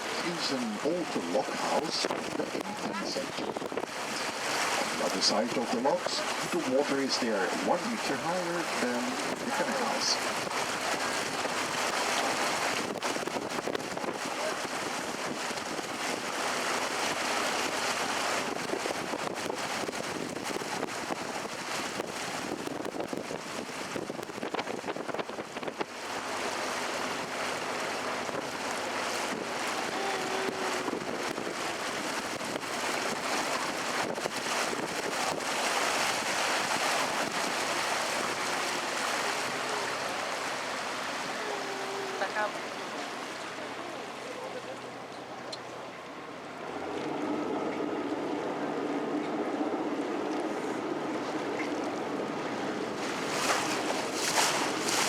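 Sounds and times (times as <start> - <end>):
water along a boat: 0.0 - 55.0
wind buffeting microphone: 1.7 - 5.0, 9.1 - 44.2.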